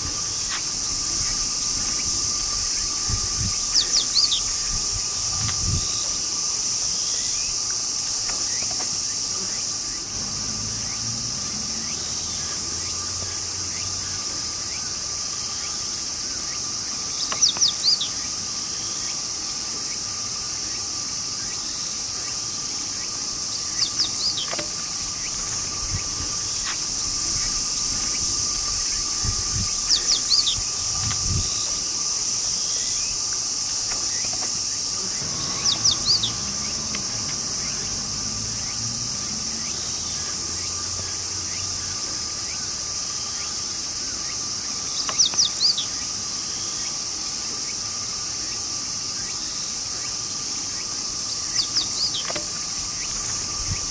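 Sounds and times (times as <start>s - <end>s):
bird chirping: 0.0s - 7.6s, 16.4s - 19.2s, 21.4s - 46.0s, 50.0s - 53.9s
insects trilling: 0.0s - 53.9s.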